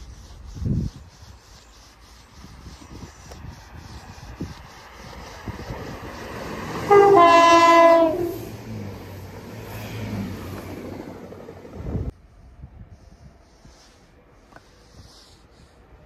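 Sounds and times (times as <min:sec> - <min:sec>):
train rumbling past: 0:03.4 - 0:13.4
train horn blast: 0:06.8 - 0:08.5.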